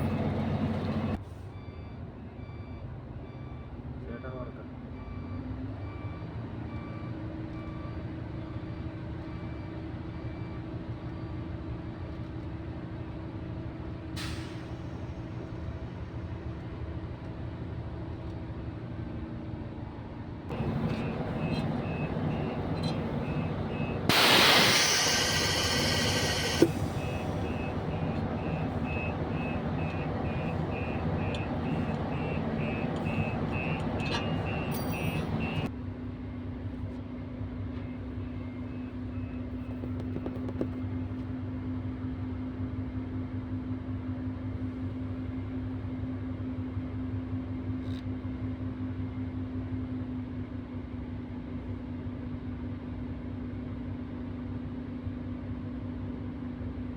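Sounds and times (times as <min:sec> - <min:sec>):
bus diesel engine: 0:00.0 - 0:56.9
electronic beeping: 0:20.5 - 0:35.7
air hiss: 0:22.2 - 0:27.8.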